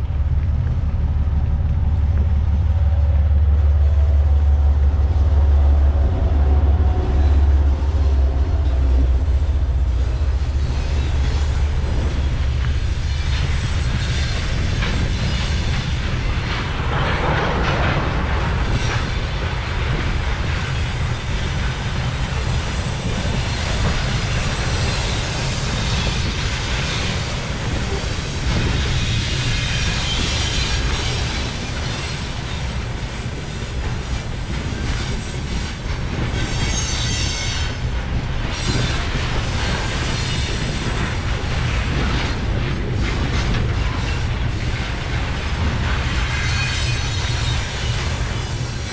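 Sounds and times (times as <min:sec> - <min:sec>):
train rumbling on rails: 0:00.0 - 0:48.9
high wheel squeal: 0:04.0 - 0:12.4, 0:22.6 - 0:41.3, 0:43.8 - 0:48.9.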